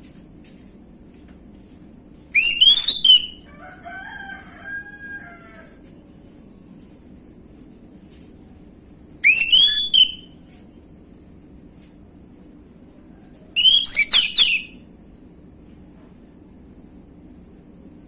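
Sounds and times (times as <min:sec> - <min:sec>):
thrush singing whistled notes: 0:02.4 - 0:03.4, 0:09.2 - 0:10.4, 0:13.6 - 0:14.9.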